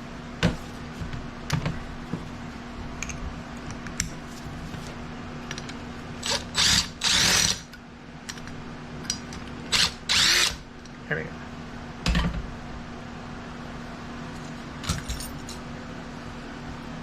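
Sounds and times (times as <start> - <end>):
cordless drill spinning up: 6.2 - 7.6, 9.7 - 10.6.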